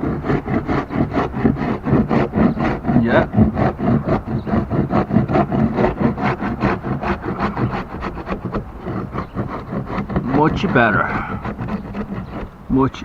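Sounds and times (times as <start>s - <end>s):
metal scraper scraping paint: 0.0s - 13.0s.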